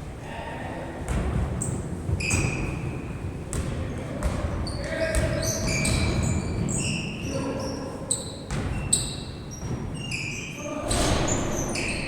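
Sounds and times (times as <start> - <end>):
basketball bouncing on court: 1.1 - 6.8, 8.4 - 10.0
shoe squeaks: 1.6 - 3.1, 4.6 - 12.0.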